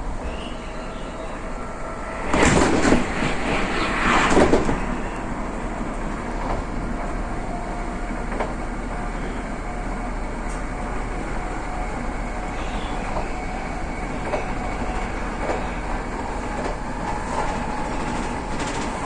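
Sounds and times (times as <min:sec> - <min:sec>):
train rushing swells: 0:00.0 - 0:08.8
train running rumble: 0:00.0 - 0:19.0.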